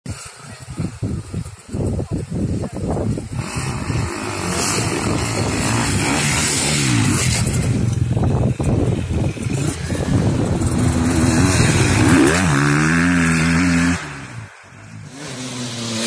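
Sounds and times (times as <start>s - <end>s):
dirt bike engine revving: 2.8s - 16.0s.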